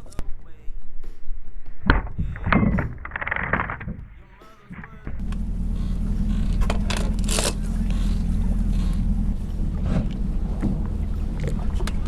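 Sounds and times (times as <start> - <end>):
sharp knocks: 1.8 - 12.0
boat engine running: 2.2 - 12.0.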